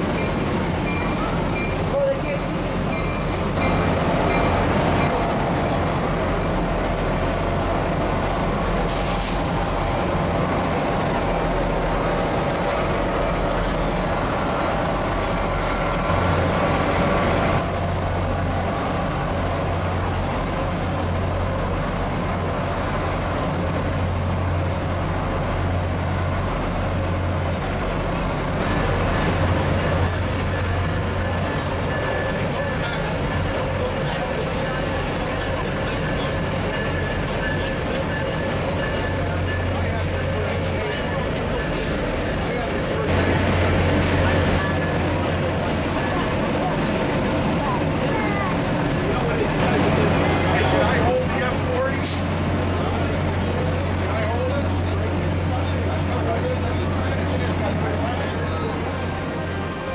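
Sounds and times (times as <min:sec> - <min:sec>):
locomotive engine hum: 0:00.0 - 0:59.9
short hiss: 0:08.9 - 0:09.8.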